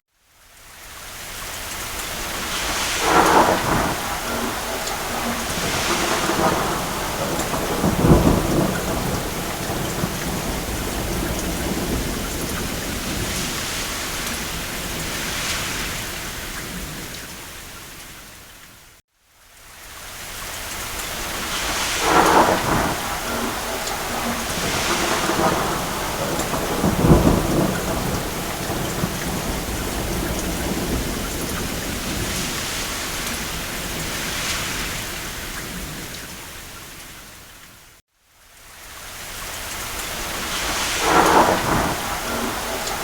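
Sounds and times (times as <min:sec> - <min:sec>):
rain falling on a roof: 0:00.1 - 0:43.0
distant thunder rumbling: 0:02.2 - 0:17.2, 0:21.2 - 0:36.5, 0:40.2 - 0:43.0.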